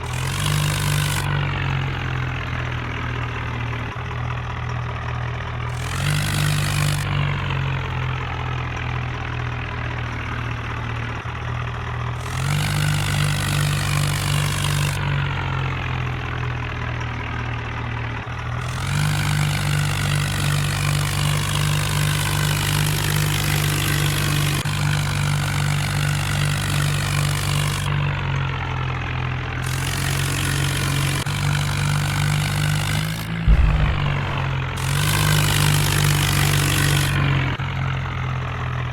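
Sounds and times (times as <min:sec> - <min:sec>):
tractor engine revving: 0:00.0 - 0:04.0, 0:05.7 - 0:07.7, 0:10.0 - 0:15.3, 0:18.4 - 0:28.0, 0:29.6 - 0:37.6
loud thump: 0:33.4 - 0:35.0.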